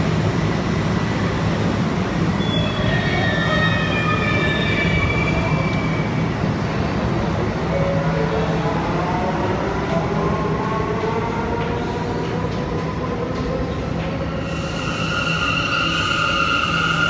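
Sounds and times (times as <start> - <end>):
subway train rumble: 0.0 - 17.0
high steady squeal: 14.3 - 17.0.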